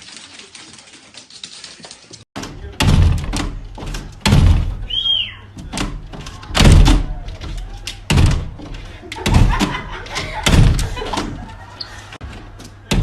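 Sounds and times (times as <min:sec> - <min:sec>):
heavy thuds and bangs: 0:02.4 - 0:04.9, 0:05.6 - 0:11.5.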